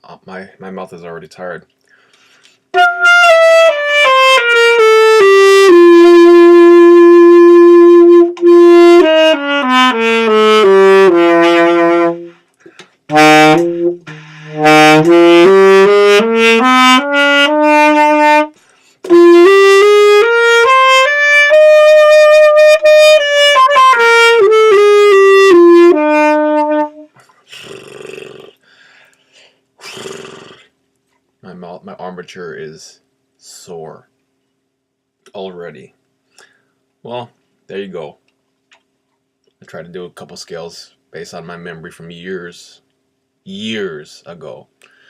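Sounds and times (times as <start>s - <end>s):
saxophone playing scales: 2.7s - 27.2s.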